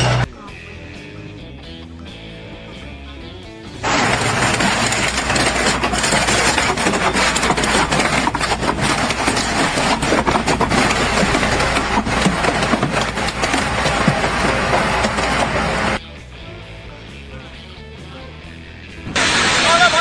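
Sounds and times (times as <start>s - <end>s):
loud engine running: 0.0s - 1.1s, 2.8s - 16.0s, 18.6s - 20.0s
clattering and rattling: 3.8s - 16.0s.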